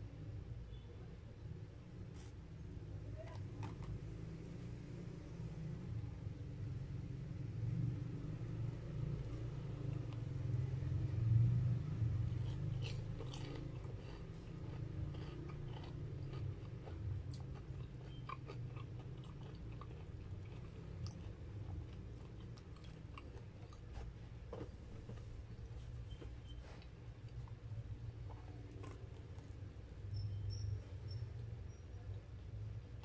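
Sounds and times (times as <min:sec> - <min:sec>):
chewing crunchy fried food: 0:02.1 - 0:04.4, 0:11.7 - 0:31.8.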